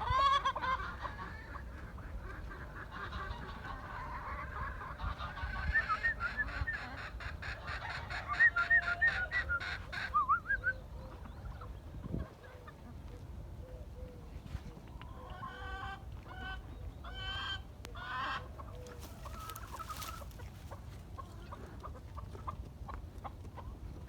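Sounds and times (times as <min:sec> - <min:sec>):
fowl honking calls: 0:15.1 - 0:21.7.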